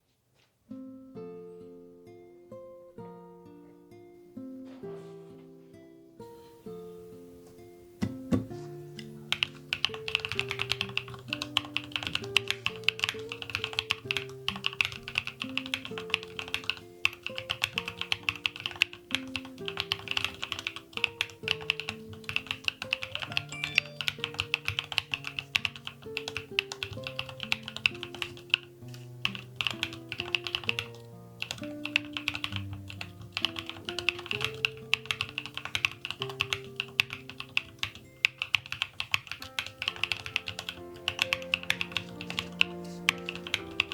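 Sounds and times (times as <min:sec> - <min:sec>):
background music with sustained notes: 0:39.4 - 0:43.9.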